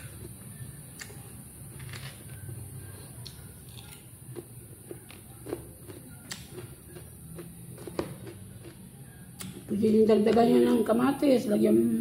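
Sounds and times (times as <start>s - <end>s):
chewing lettuce crunching: 0.2s - 9.6s.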